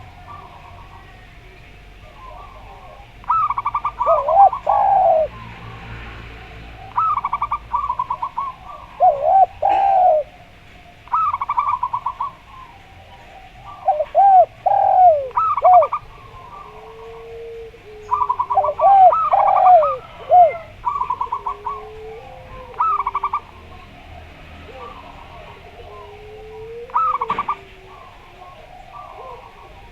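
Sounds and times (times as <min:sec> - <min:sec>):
doves cooing: 0:00.0 - 0:29.9.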